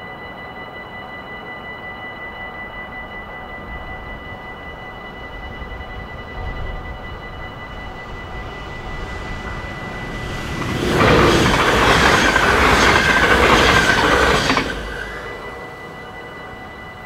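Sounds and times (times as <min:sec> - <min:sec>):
crossing warning bell: 0:00.0 - 0:17.0
train wheels rushing on rails: 0:06.0 - 0:17.0.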